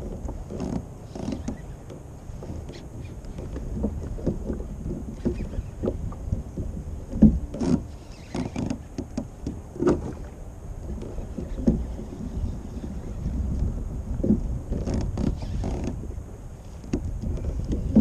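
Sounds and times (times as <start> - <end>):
knocks and splashes: 0.0 - 12.0
low wind rumble on microphone: 0.0 - 18.0
water slapping kayak hull: 0.0 - 18.0.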